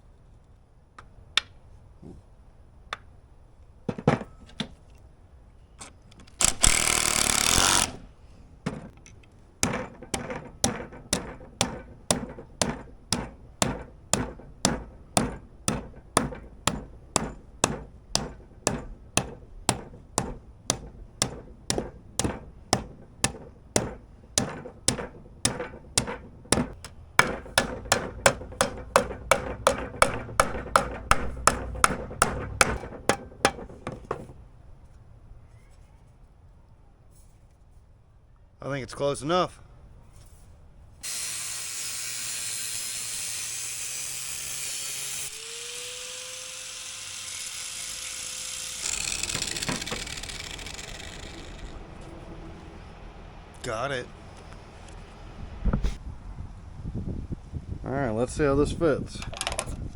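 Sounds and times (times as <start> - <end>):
hammer striking sheet metal: 9.6 - 34.4
harsh metal rasp: 9.6 - 34.4, 41.0 - 51.8.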